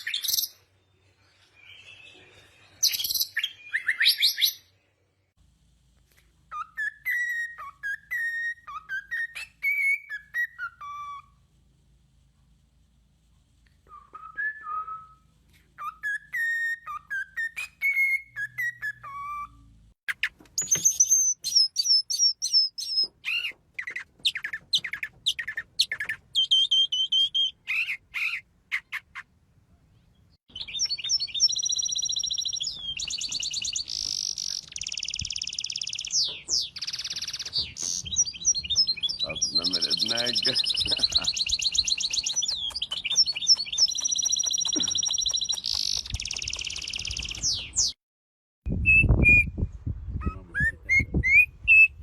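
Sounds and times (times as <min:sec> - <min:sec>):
high bird chirping: 0:00.0 - 0:00.6, 0:01.2 - 0:04.7, 0:15.8 - 0:29.2, 0:29.9 - 0:48.0
bird whistled phrases: 0:02.8 - 0:04.6, 0:30.5 - 0:47.9, 0:48.7 - 0:52.0.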